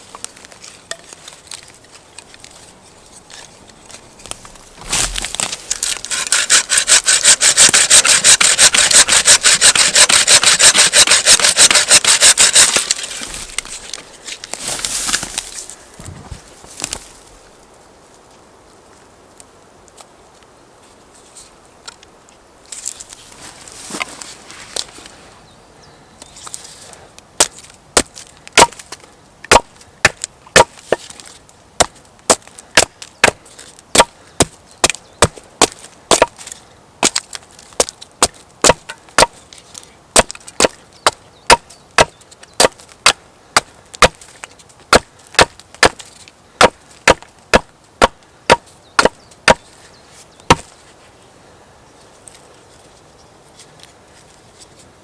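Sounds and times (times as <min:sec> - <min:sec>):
wood splintering and crackling: 0:00.0 - 0:15.8, 0:27.4 - 0:49.6
sharp chops into wood: 0:27.4 - 0:28.8, 0:29.5 - 0:30.8, 0:31.8 - 0:36.4, 0:37.8 - 0:39.4, 0:40.2 - 0:44.2, 0:46.6 - 0:49.6, 0:50.5 - 0:50.7.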